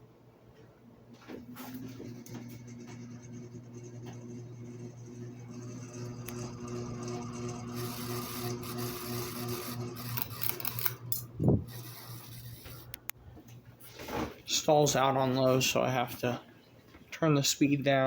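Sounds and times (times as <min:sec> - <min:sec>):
ceiling fan motor buzzing: 0:01.1 - 0:13.8.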